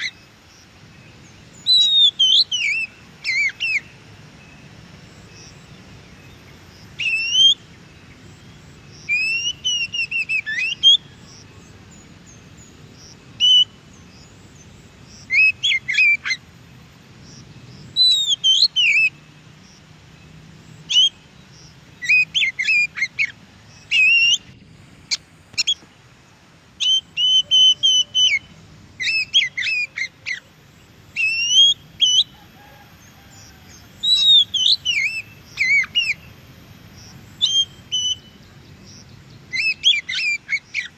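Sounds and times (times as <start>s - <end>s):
bird singing whistles and chatter: 1.6s - 3.9s, 7.0s - 7.6s, 18.0s - 19.2s, 26.8s - 30.4s, 31.2s - 32.4s, 34.0s - 36.2s, 37.4s - 38.4s, 39.5s - 40.9s.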